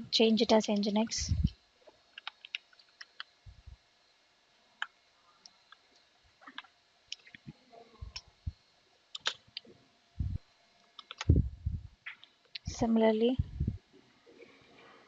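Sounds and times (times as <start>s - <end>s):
computer keyboard key clicks: 2.2s - 3.3s, 9.2s - 9.4s, 11.0s - 11.3s.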